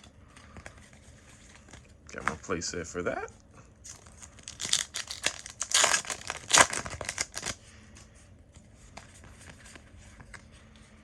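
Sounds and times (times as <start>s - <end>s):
foil wrapper crinkling: 3.8s - 7.6s.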